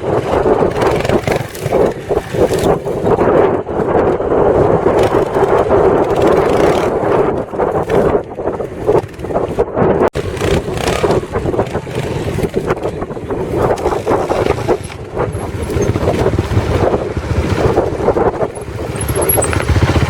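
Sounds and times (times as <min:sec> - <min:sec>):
wind buffeting microphone: 0:00.0 - 0:20.0
motorcycle engine running unevenly: 0:10.2 - 0:20.0.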